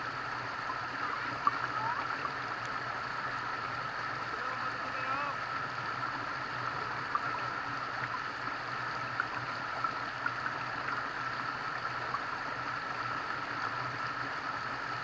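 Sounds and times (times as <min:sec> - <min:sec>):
running water: 0:00.0 - 0:15.0.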